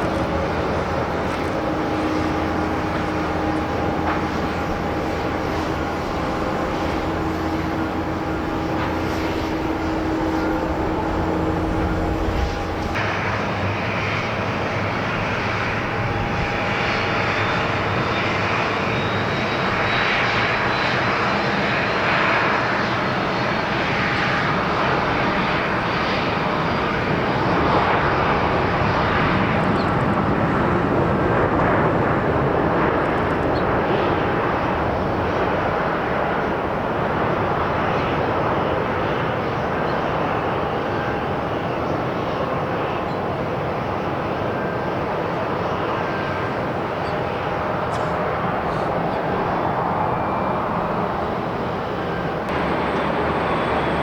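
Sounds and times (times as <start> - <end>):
jet airliner engines: 0.0 - 54.0
faint high whine falling: 52.5 - 54.0.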